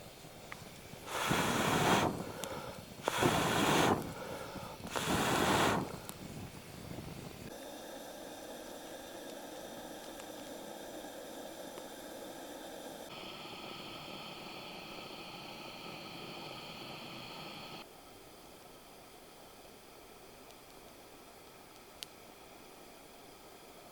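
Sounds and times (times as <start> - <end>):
faint hiss with hum: 0.0 - 23.9
rushing blows of breath: 0.6 - 17.8.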